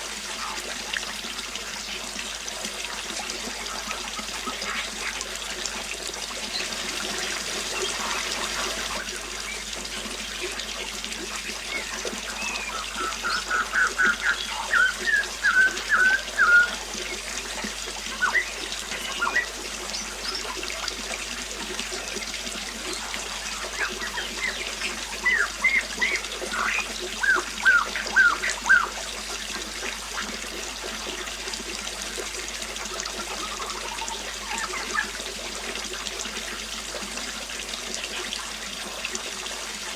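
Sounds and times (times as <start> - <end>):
water trickling: 0.0 - 39.9
bird chirping: 11.6 - 17.3, 18.1 - 20.5, 23.5 - 29.0.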